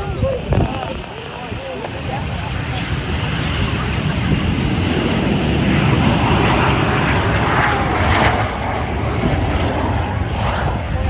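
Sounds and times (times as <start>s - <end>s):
jet engines at takeoff power: 0.0s - 11.0s.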